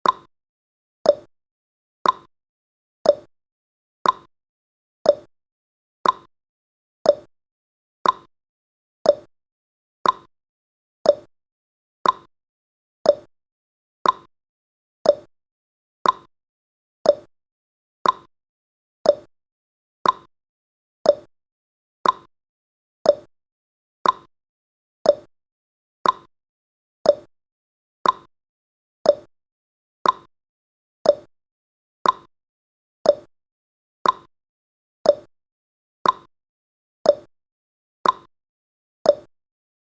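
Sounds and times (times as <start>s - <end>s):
clock-like tick-tock: 0.0s - 0.3s, 1.0s - 1.3s, 2.0s - 2.3s, 3.0s - 3.3s, 4.0s - 4.3s, 5.0s - 5.3s, 6.0s - 6.3s, 7.0s - 7.3s, 8.0s - 8.3s, 9.0s - 9.3s, 10.0s - 10.3s, 11.0s - 11.3s, 12.0s - 12.3s, 13.0s - 13.3s, 14.0s - 14.3s, 15.0s - 15.3s, 16.0s - 16.3s, 17.0s - 17.3s, 18.0s - 18.3s, 19.0s - 19.3s, 20.0s - 20.3s, 21.0s - 21.3s, 22.0s - 22.3s, 23.0s - 23.3s, 24.0s - 24.3s, 25.0s - 25.3s, 26.0s - 26.3s, 27.0s - 27.3s, 28.0s - 28.3s, 29.0s - 29.4s, 30.0s - 30.3s, 31.0s - 31.4s, 32.0s - 32.3s, 33.0s - 33.4s, 34.0s - 34.4s, 35.0s - 35.4s, 36.0s - 36.4s, 37.0s - 37.4s, 38.0s - 38.4s, 39.0s - 39.4s.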